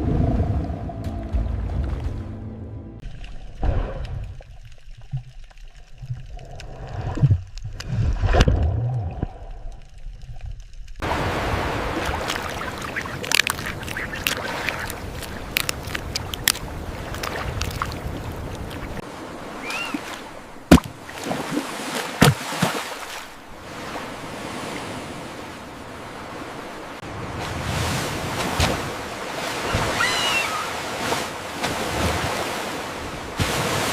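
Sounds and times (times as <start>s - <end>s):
low underwater rumbles: 0.0s - 11.1s
clicks and crackles: 3.0s - 11.0s, 12.3s - 18.9s.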